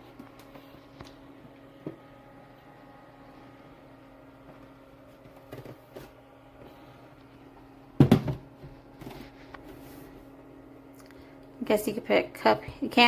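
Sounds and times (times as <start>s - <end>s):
steady low hum: 0.0s - 13.0s
plastic fridge knocks and clunks: 8.0s - 8.8s.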